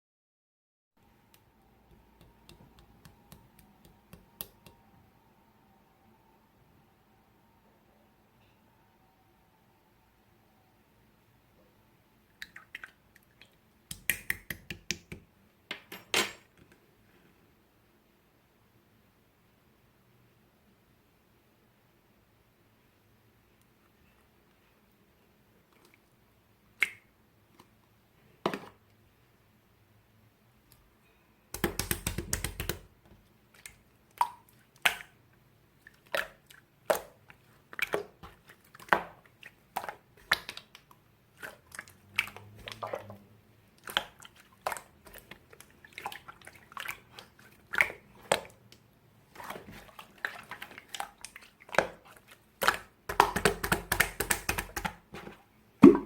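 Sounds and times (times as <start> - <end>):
slime squishing with wet pops: 1.3 - 4.8, 12.3 - 15.3, 31.5 - 56.0.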